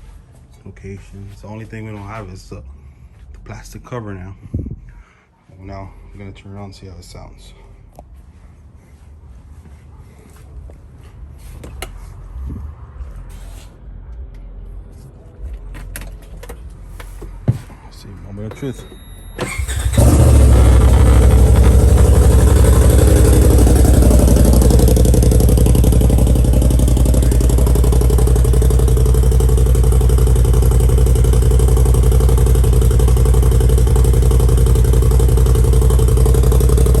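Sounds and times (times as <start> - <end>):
engine idling loud: 19.5 - 37.0.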